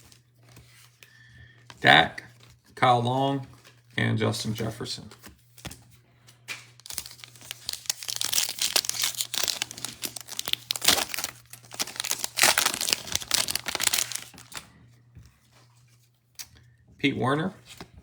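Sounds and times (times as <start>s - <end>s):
foil wrapper tearing and crinkling: 6.6s - 14.6s.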